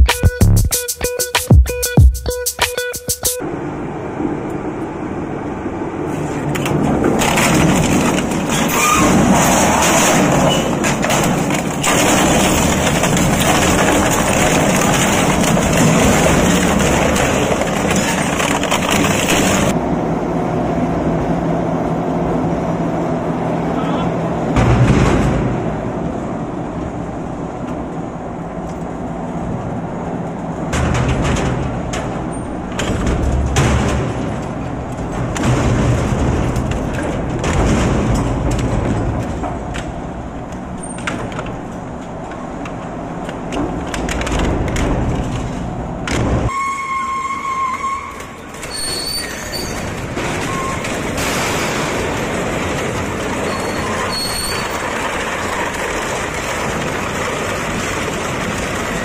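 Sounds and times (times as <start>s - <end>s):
high-pitched tone: 0.0s - 3.4s
shredder rumbling: 3.5s - 46.6s, 48.1s - 59.0s
shredder clattering and crunching: 6.5s - 19.8s, 30.7s - 46.4s, 48.3s - 59.0s.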